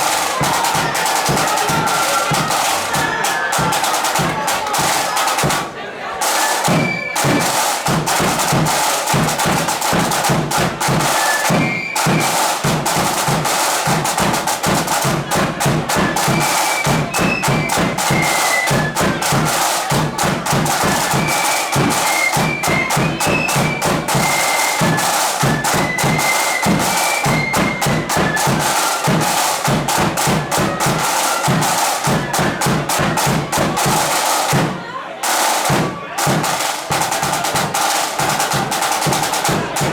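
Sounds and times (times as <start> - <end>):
rapid snare drumming: 0.0 - 39.9
flutes playing high melody: 11.0 - 12.6, 15.9 - 19.9, 20.7 - 29.6.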